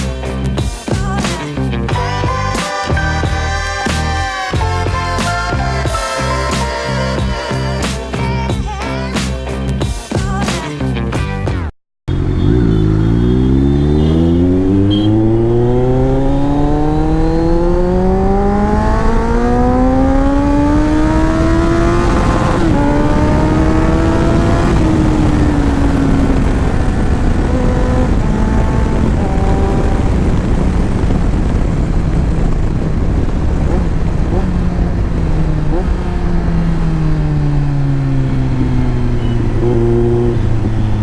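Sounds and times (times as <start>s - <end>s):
motorcycle engine revving: 12.1s - 41.0s.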